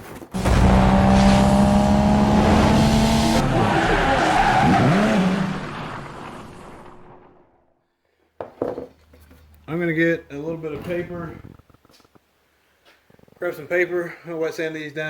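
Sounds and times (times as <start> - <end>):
car engine: 0.3 - 7.6
tyres squealing: 3.4 - 5.6.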